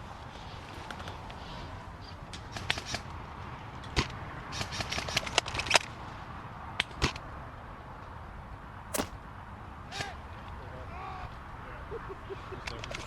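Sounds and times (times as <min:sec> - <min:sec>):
airsoft gunfire cracks: 0:09.0 - 0:09.2.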